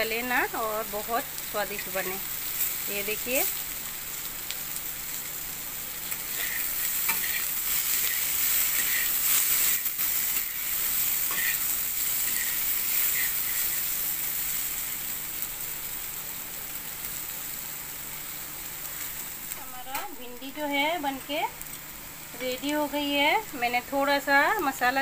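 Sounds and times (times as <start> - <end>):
food sizzling in oil: 0.0 - 25.0
metal spatula scraping pan: 6.1 - 14.0.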